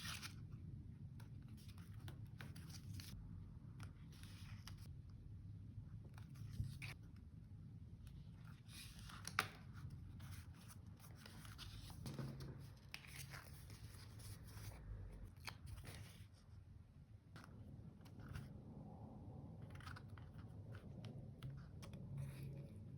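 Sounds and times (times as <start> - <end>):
paper rustling: 8.4 - 16.6.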